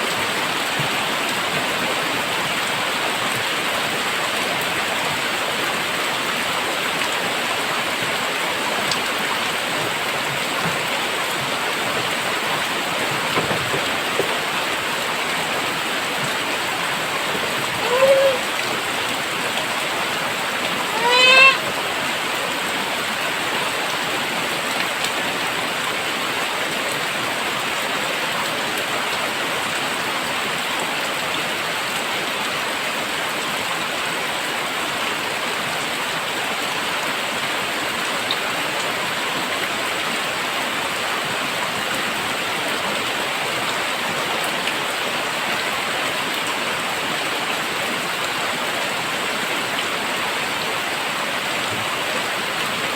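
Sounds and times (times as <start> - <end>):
heavy rain pouring: 0.0 - 52.9
short rising call: 17.8 - 18.6.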